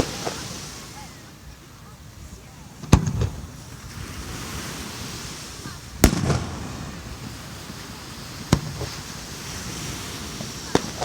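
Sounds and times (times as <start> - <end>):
fireworks crackles: 0.0 - 11.0
fireworks booming: 2.8 - 4.8, 5.7 - 11.0.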